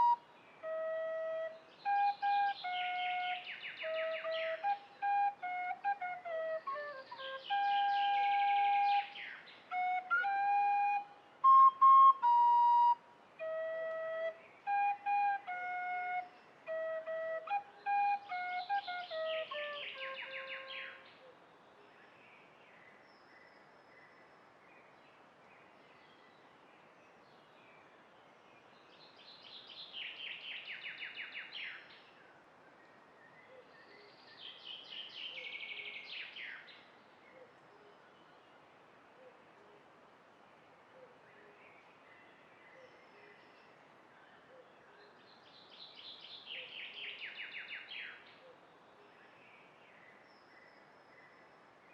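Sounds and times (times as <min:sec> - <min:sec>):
flute-like melody: 0:00.0 - 0:21.0.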